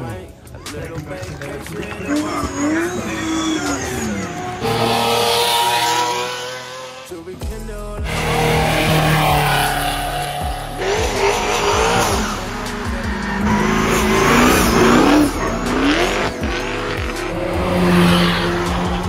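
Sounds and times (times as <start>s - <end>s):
tyre squeal: 0.5s - 7.0s, 8.1s - 19.0s
car engine accelerating hard: 1.7s - 7.2s, 8.0s - 19.0s.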